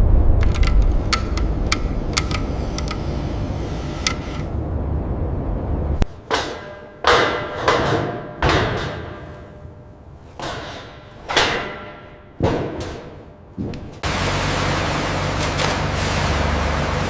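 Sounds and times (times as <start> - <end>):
low steady rumble: 0.0 - 6.2
heavy echoing knocks: 6.1 - 14.0.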